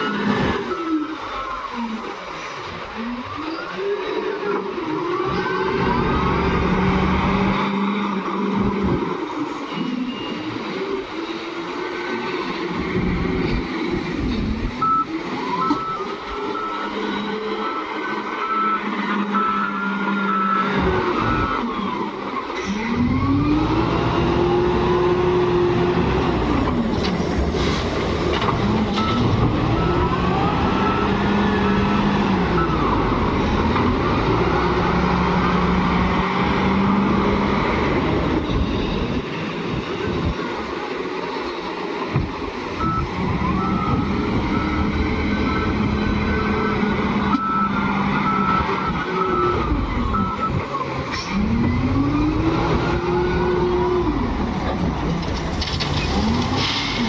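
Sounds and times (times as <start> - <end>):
diesel engine revving: 0.0 - 9.8, 10.5 - 41.0, 42.5 - 57.0
reversing alarm beeping: 14.8 - 21.9, 42.8 - 51.0.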